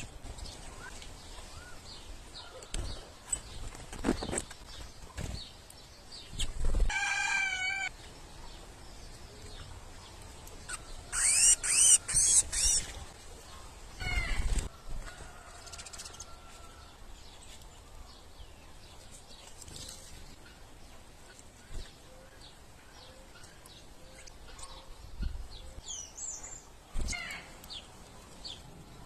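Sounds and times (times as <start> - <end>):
rooster-like crow: 6.9 - 7.9, 15.0 - 17.0
loud high bird chirps: 10.7 - 12.9.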